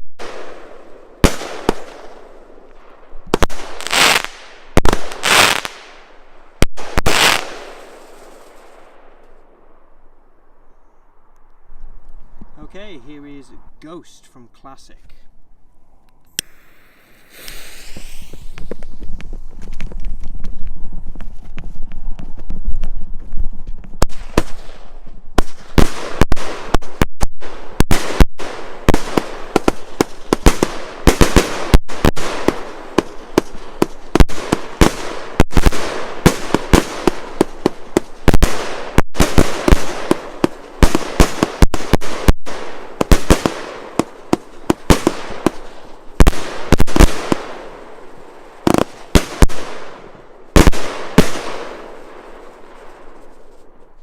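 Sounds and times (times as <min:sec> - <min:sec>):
firework bangs and pops: 0:00.2 - 0:09.4, 0:16.4 - 0:54.0.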